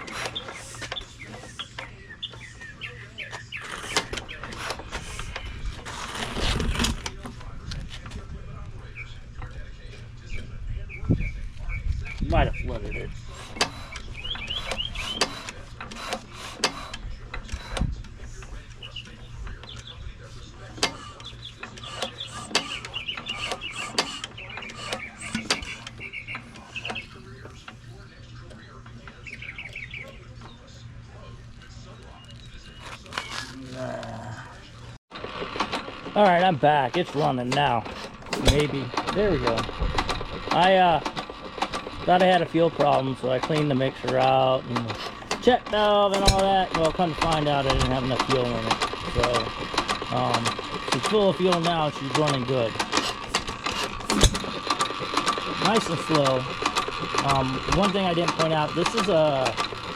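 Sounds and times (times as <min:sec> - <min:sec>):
small birds chirping: 0:00.0 - 0:07.3, 0:08.3 - 0:35.0
sharp clicks or knocks: 0:46.1 - 0:47.9, 0:52.8 - 0:55.7.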